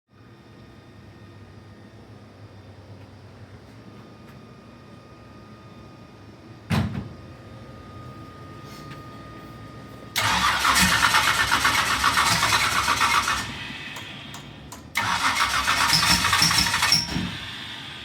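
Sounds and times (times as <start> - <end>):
starter cranking engine: 10.2 - 14.1, 15.0 - 17.6.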